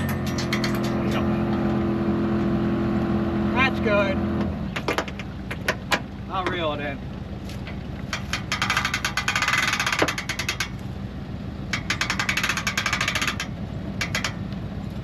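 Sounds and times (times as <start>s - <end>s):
vehicle engine idling: 0.0s - 15.0s
winch ratcheting clicks: 8.1s - 10.8s, 11.7s - 14.6s.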